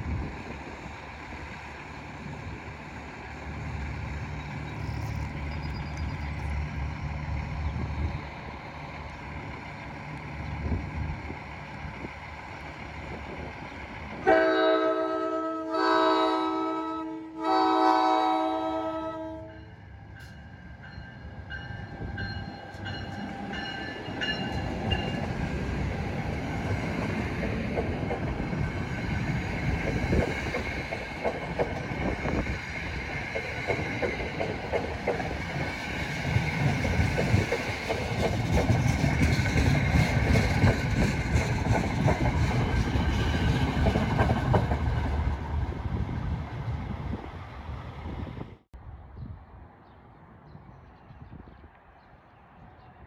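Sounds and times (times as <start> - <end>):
train horn: 14.2 - 19.7
train wheels clacking over joints: 22.2 - 45.4.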